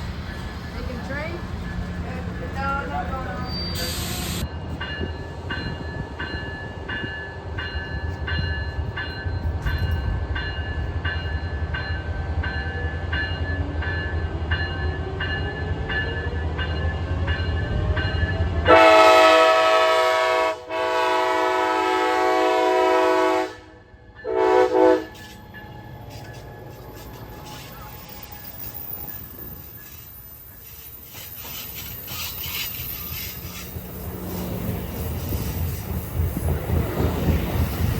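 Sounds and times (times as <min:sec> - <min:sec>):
crossing bell ringing: 0:00.0 - 0:20.1, 0:23.8 - 0:37.9
train rumbling past: 0:00.0 - 0:37.9
train horn blasts: 0:18.6 - 0:25.4.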